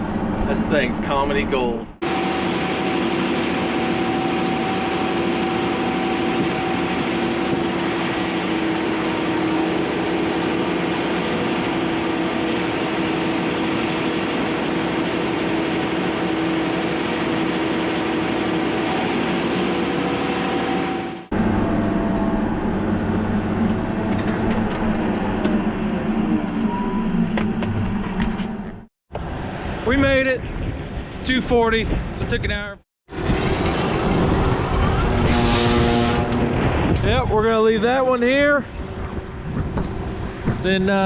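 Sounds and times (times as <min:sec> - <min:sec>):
tractor engine running: 0:00.0 - 0:28.9, 0:33.1 - 0:37.0
steady whine: 0:00.0 - 0:29.3.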